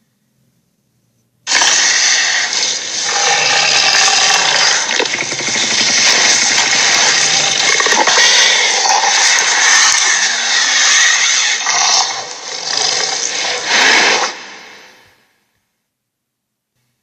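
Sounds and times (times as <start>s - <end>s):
electronic toy sound effect: 1.5s - 12.2s.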